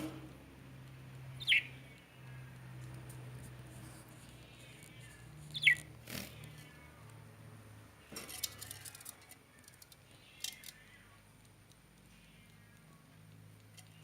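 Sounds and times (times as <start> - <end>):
shrill bird chirp: 1.4 - 2.0, 5.5 - 5.9.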